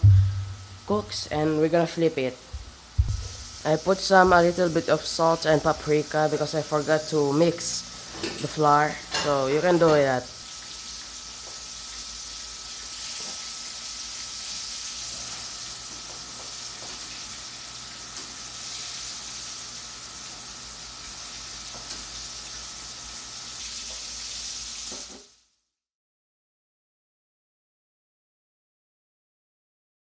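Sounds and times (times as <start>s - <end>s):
nuggets sizzling in oil: 2.7s - 25.4s.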